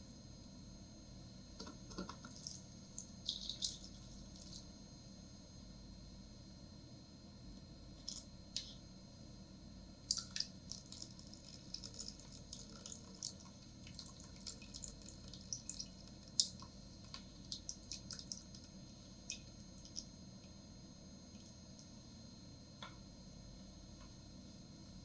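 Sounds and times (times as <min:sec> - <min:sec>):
food popping in a pan: 0:01.6 - 0:04.7, 0:10.1 - 0:20.1.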